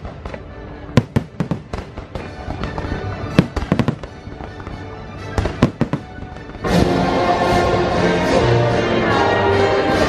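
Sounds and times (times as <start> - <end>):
fireworks bursting: 0.0 - 7.2
music playing: 0.0 - 10.0.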